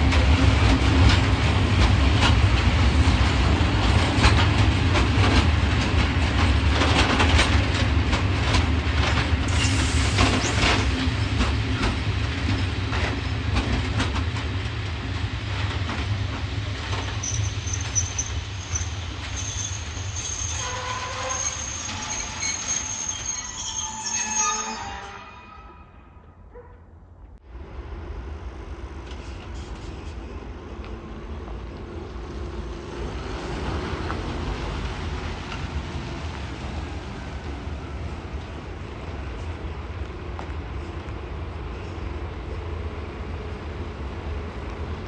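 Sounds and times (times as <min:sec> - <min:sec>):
wheels clicking over rail joints: 0:00.0 - 0:09.5
freight train rolling: 0:00.0 - 0:45.0
high wheel squeal: 0:09.5 - 0:11.0, 0:17.0 - 0:26.1.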